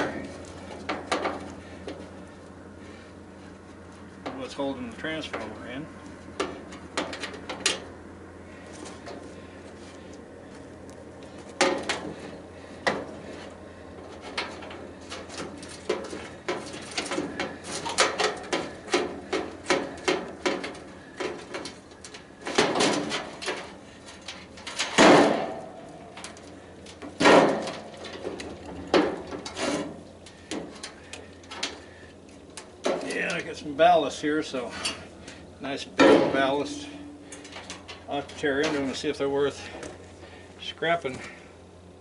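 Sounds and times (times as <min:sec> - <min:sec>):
sheet metal clanks: 0:14.2 - 0:26.4, 0:27.0 - 0:31.8, 0:36.0 - 0:38.9.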